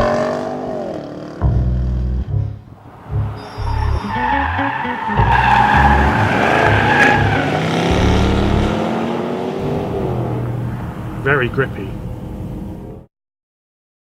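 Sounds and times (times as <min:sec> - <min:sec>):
car engine driven hard: 0:00.0 - 0:13.1
tyres squealing: 0:02.7 - 0:08.8.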